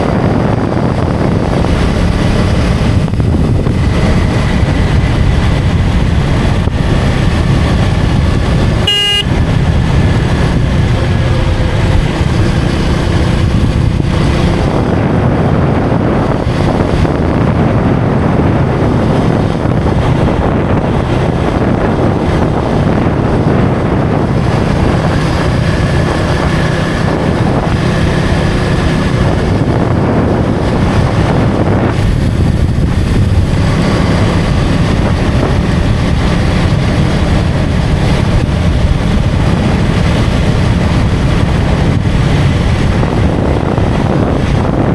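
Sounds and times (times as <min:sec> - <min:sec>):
motorcycle engine running: 0:00.0 - 0:44.9
wind rushing over microphone: 0:00.0 - 0:44.9
vehicle horn toot: 0:08.8 - 0:09.6.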